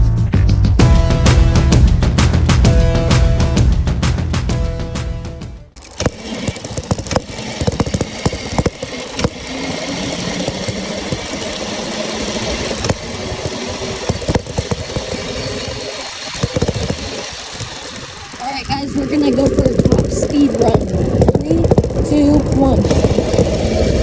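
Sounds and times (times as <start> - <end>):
sharp rattles and knocks: 5.7 - 24.0
electric motor whine: 5.8 - 24.0.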